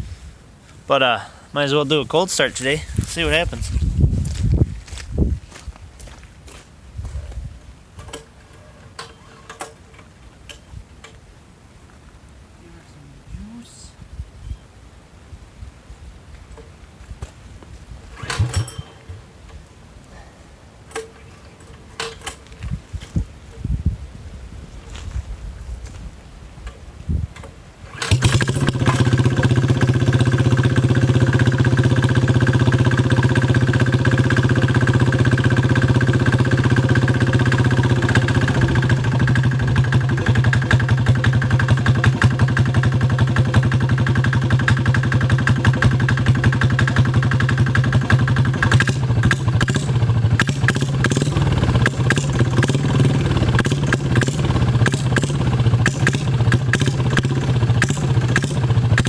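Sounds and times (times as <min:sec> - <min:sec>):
small diesel engine running: 0:18.1 - 0:19.3, 0:27.9 - 0:59.0.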